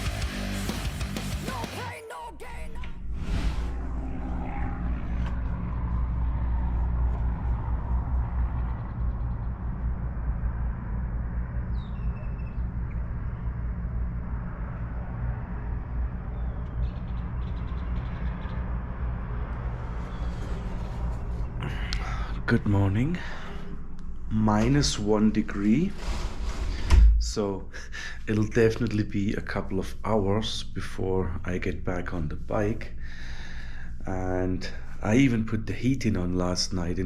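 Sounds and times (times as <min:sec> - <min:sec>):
wind noise: 0:03.0 - 0:22.4.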